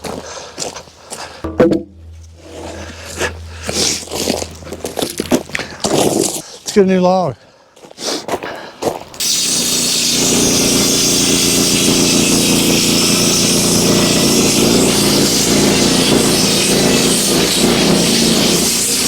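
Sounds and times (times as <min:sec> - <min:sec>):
engine running steadily: 0:01.5 - 0:06.2, 0:09.3 - 0:19.0.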